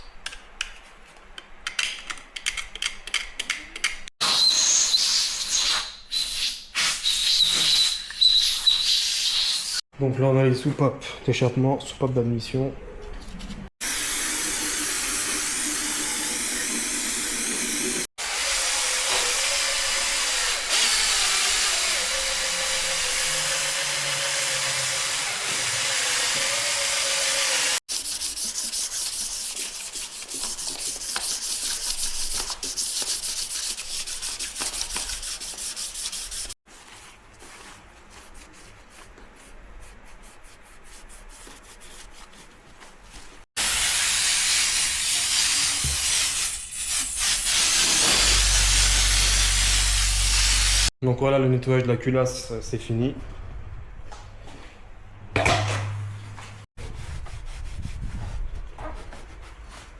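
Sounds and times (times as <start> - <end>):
abrasive scrubbing and sanding: 27.2 - 36.6, 56.8 - 59.9
power tool humming: 47.5 - 50.9.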